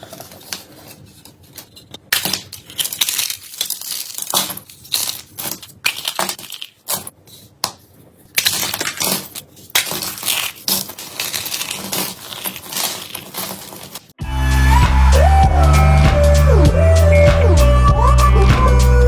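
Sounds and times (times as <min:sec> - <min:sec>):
slime crackling and crunching: 0:00.0 - 0:07.2, 0:08.3 - 0:14.2
loud music with heavy bass: 0:14.2 - 0:19.0.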